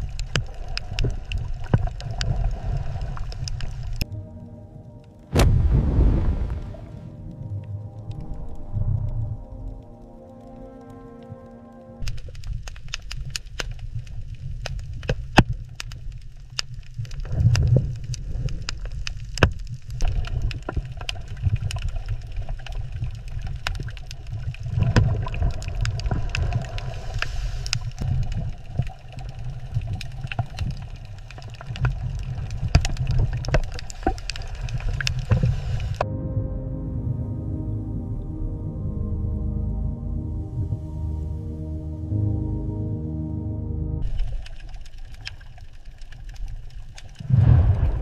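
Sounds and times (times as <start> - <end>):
sharp underwater clicks: 0.0 - 4.2, 7.4 - 36.0, 44.0 - 48.0
underwater rumble of moving water: 0.0 - 41.8, 44.0 - 48.0.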